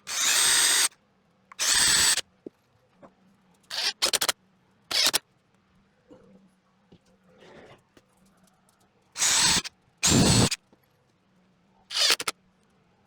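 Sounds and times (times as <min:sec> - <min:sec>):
handheld power tool bursts: 0:00.0 - 0:00.9, 0:01.5 - 0:02.2, 0:03.7 - 0:04.3, 0:04.9 - 0:05.2, 0:09.2 - 0:10.6, 0:11.9 - 0:12.3.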